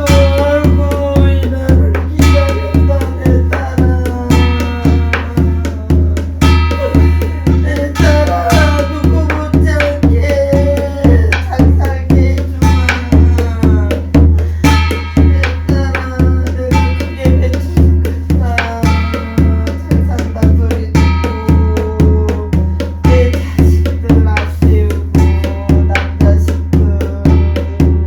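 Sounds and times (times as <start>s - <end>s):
wavering melody line: 0.0s - 22.4s
even drum beat: 0.0s - 28.0s.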